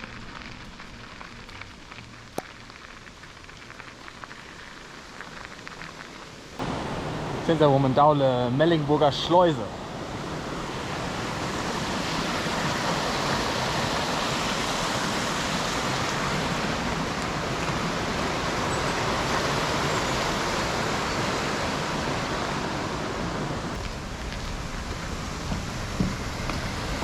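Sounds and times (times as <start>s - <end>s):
water rushing through weir: 6.6s - 27.0s.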